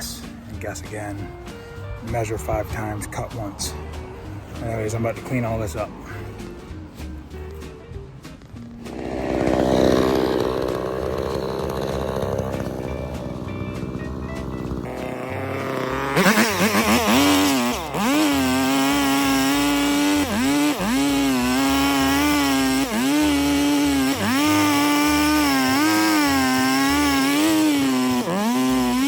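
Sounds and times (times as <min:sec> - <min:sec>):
two-stroke chainsaw revving: 0:08.3 - 0:29.0.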